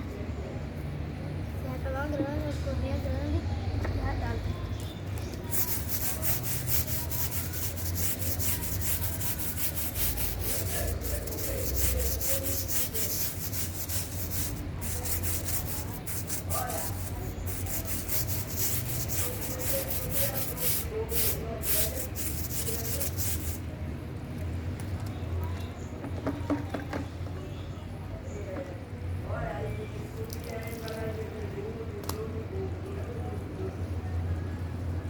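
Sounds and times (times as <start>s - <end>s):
brush scrubbing: 5.4s - 23.6s.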